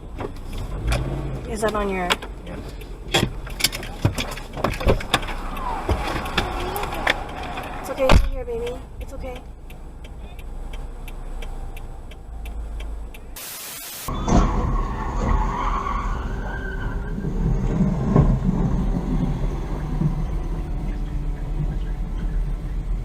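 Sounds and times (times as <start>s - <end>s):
car road rumble: 0.0s - 23.0s
tyres skidding: 0.0s - 23.0s
hiss: 13.4s - 14.1s.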